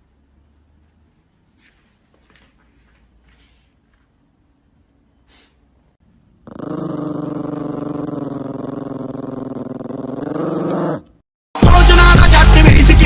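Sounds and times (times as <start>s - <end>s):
dog growling: 6.4s - 11.2s.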